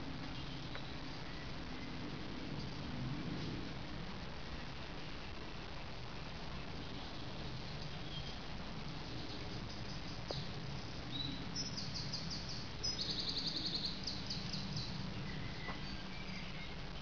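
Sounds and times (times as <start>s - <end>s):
low background rumble: 0.0s - 17.0s
small songbird singing: 0.2s - 2.0s, 6.9s - 8.5s, 9.1s - 17.0s.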